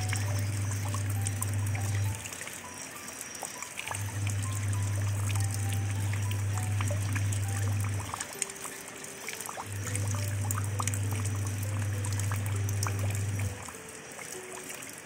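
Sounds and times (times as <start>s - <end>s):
low bass hum: 0.0s - 2.2s, 4.0s - 8.2s, 9.7s - 13.6s
quiet held music notes: 0.0s - 15.0s
rain splashing into puddle: 0.0s - 15.0s.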